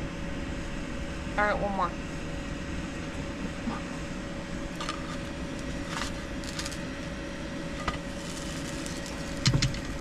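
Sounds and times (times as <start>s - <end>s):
low rumble of cooking: 0.0s - 10.0s.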